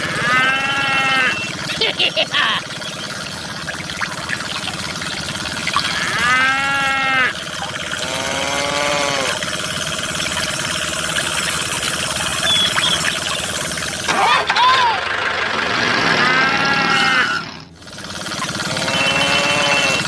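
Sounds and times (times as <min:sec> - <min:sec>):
farm animal calls: 0:00.0 - 0:04.0, 0:04.9 - 0:09.6, 0:11.7 - 0:15.0, 0:16.0 - 0:17.6, 0:18.4 - 0:20.0
steady background hum: 0:00.0 - 0:20.0.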